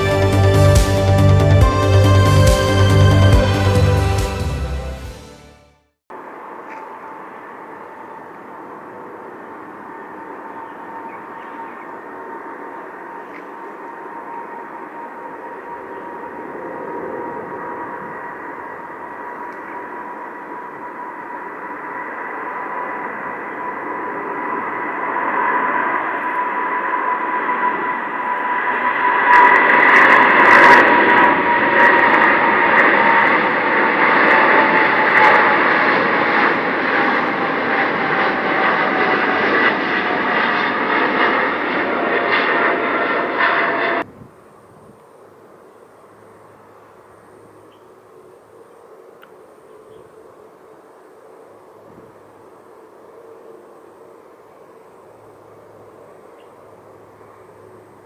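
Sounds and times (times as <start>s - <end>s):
jet fan whine falling in pitch: 6.2s - 44.1s
jet engines at takeoff power: 6.2s - 49.4s.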